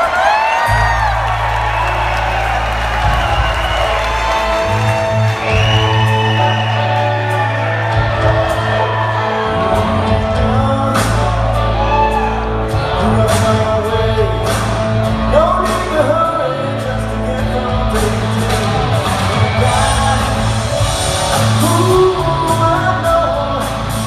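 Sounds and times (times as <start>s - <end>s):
rock band playing: 0.0s - 24.0s
person singing: 5.4s - 24.0s.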